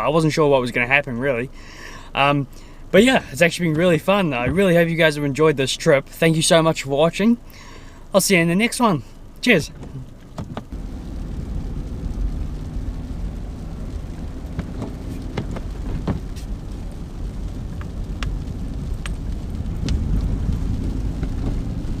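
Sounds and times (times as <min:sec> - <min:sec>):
car driving on snowy road: 0:09.6 - 0:22.0.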